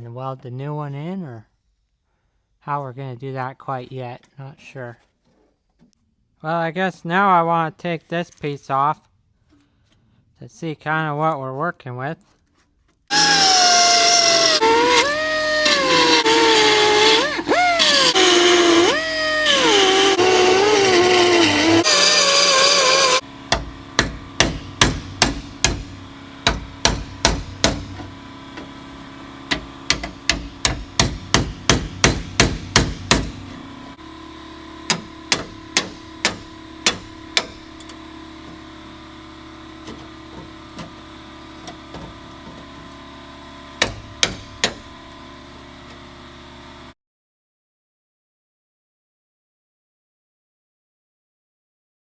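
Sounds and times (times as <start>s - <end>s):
power tool running: 13.1s - 23.3s.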